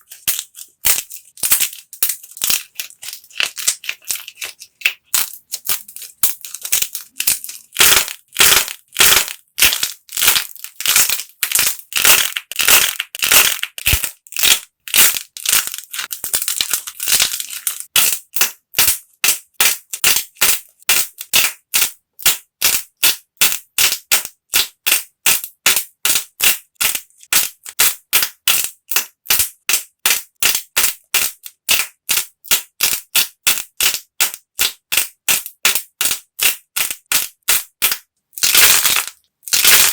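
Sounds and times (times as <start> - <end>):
hardened clay crunching: 0.0 - 22.8, 38.4 - 39.9.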